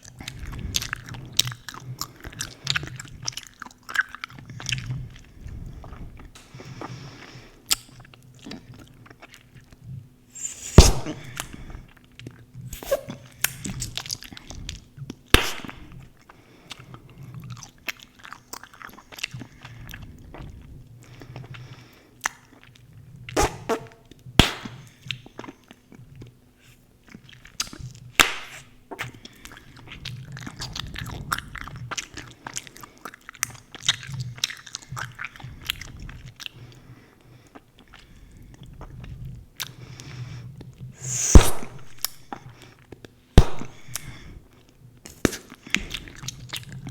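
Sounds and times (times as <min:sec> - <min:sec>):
gum bubbles popping: 0:15.4 - 0:16.1.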